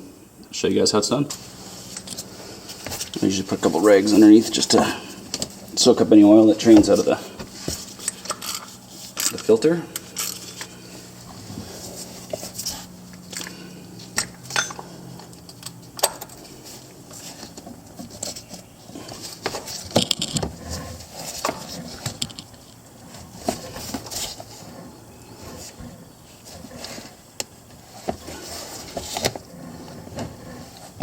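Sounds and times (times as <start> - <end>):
metal tools clicking and clinking: 14.2 - 16.5.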